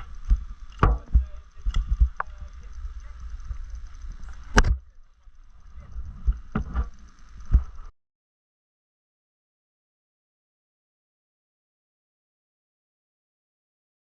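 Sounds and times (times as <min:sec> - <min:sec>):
low rumble: 0:00.0 - 0:07.9
sharp knocks: 0:00.8 - 0:01.3.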